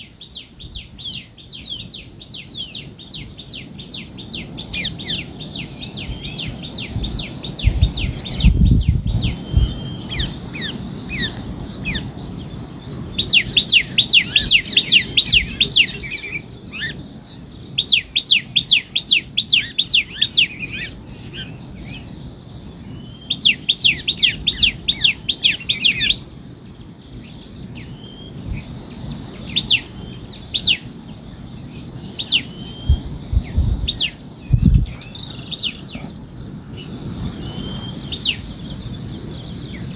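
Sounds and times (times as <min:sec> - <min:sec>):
bird singing quick chirps: 0:32.0 - 0:39.9.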